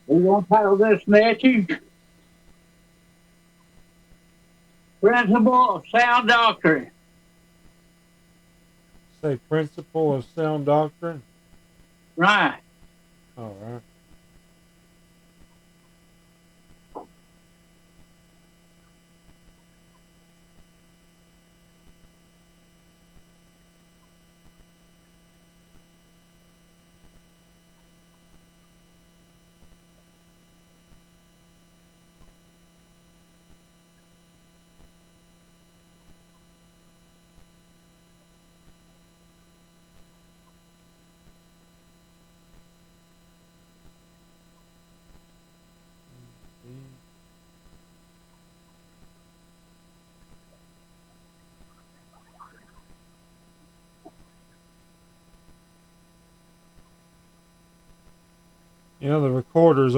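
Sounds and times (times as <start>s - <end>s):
low electrical hum: 0.0s - 59.9s
faint ticks: 2.0s - 2.7s, 3.6s - 4.2s, 15.3s - 16.1s, 17.9s - 20.9s, 23.1s - 25.9s, 26.9s - 32.4s, 35.8s - 41.7s, 46.1s - 49.5s, 50.1s - 58.8s.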